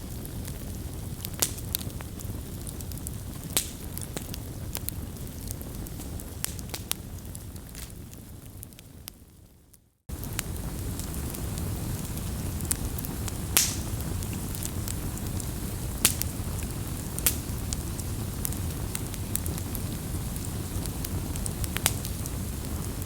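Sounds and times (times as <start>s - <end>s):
burning wood rumbling: 0.0s - 8.8s, 10.1s - 23.0s
campfire pops and snaps: 0.2s - 8.9s, 10.1s - 23.0s.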